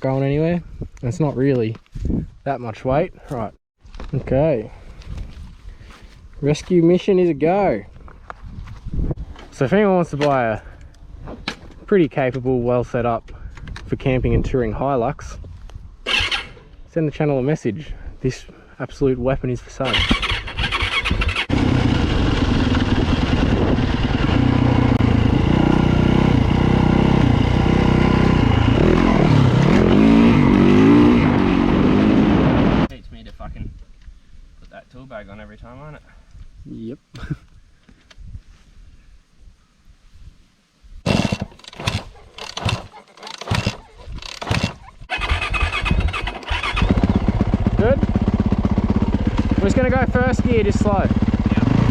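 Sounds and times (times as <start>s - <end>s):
dirt bike engine revving: 19.9s - 32.9s, 41.0s - 51.9s.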